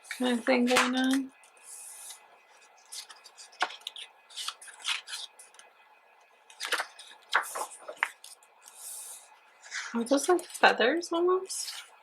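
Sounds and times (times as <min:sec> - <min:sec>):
paper pages rustling: 0:01.8 - 0:05.6, 0:06.5 - 0:09.0, 0:09.6 - 0:10.6.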